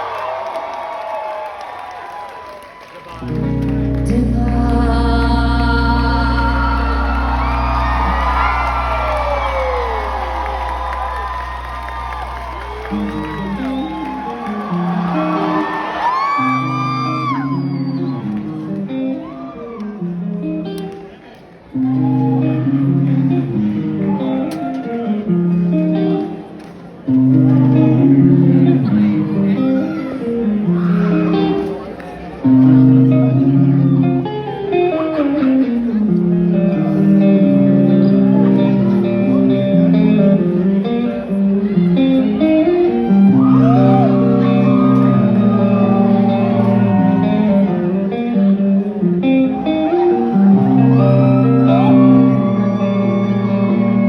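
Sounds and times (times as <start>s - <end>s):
crowd whooping: 0.0s - 4.2s, 5.9s - 20.8s, 21.8s - 26.5s, 36.9s - 54.0s
live rock band playing: 3.2s - 19.2s, 21.9s - 54.0s.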